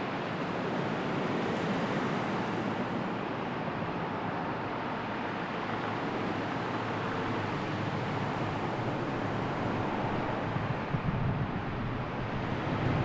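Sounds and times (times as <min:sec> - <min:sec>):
sea surf: 0:00.0 - 0:13.0
wind: 0:00.0 - 0:13.0.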